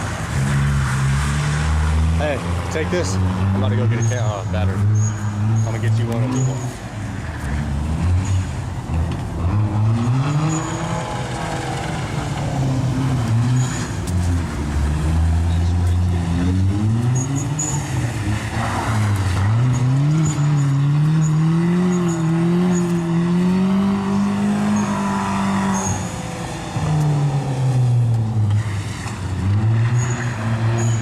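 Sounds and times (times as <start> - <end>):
car engine revving hard: 0.0 - 6.8, 7.4 - 31.0
tyres squealing: 9.8 - 27.6.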